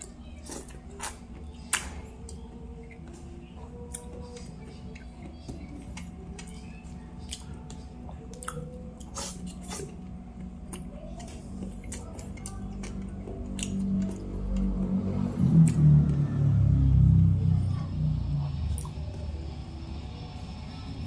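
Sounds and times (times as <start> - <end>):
wet chewing and lip smacking: 3.8 - 10.0, 10.7 - 14.3.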